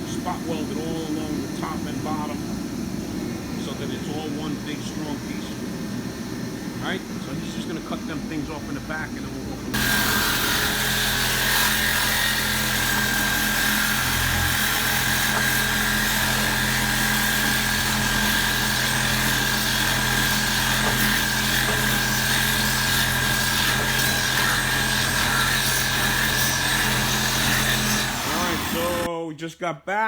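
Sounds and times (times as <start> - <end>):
power tool cutting steel: 9.7 - 29.1.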